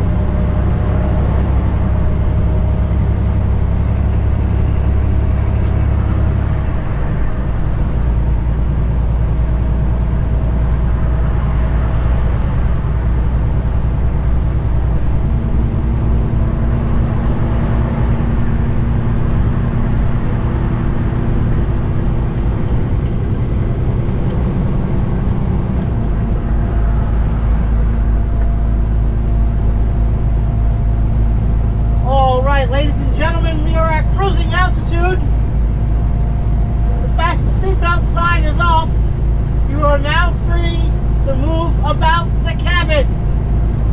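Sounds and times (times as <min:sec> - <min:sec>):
diesel truck engine running: 0:00.0 - 0:43.9.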